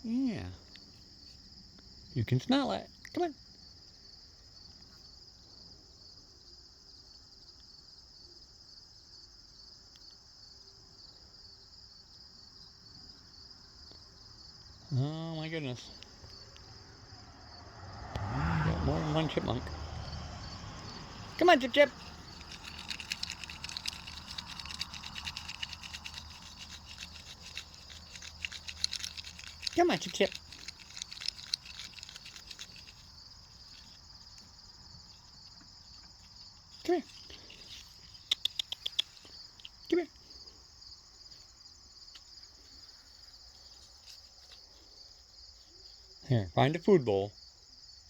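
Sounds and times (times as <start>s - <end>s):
insect chorus trilling: 0.0s - 48.0s
chipmunks eating seeds: 20.0s - 41.4s
soft ticks: 38.3s - 39.8s.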